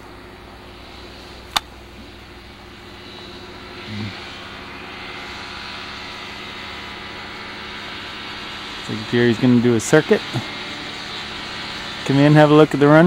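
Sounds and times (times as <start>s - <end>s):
light airplane engine droning: 0.0s - 13.0s
sharp click: 1.5s - 1.7s.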